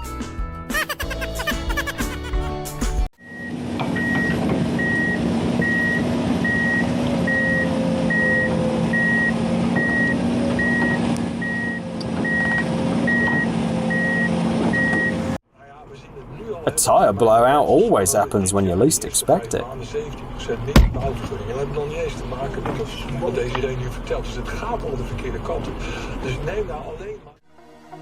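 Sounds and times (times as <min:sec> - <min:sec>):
reversing alarm beeping: 0:03.2 - 0:15.3
vehicle engine running: 0:03.2 - 0:16.7.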